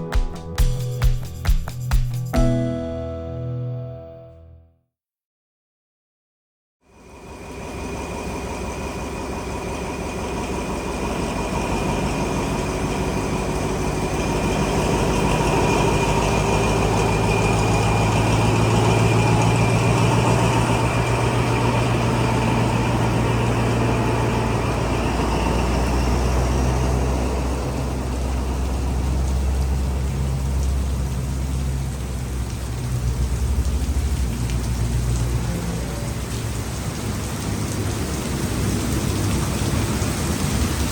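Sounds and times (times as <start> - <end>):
diesel locomotive engine humming: 7.2 - 34.0.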